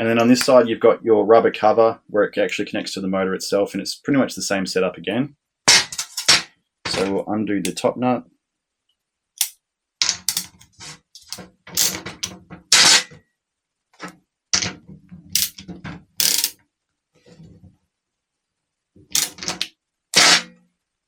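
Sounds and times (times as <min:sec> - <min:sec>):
hand tool clicking on metal nut: 0:10.2 - 0:10.5, 0:15.4 - 0:15.6, 0:16.2 - 0:16.5, 0:19.1 - 0:20.4.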